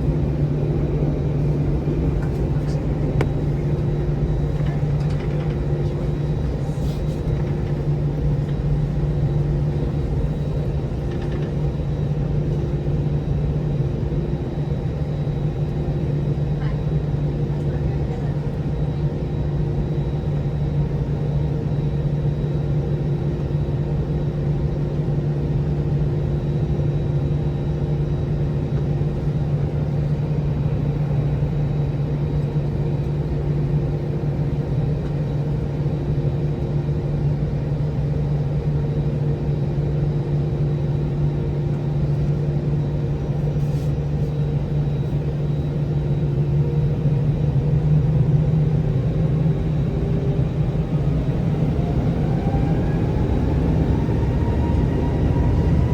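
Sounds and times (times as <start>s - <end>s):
low cabin rumble: 0.0s - 21.7s
jet engines humming: 0.0s - 55.9s.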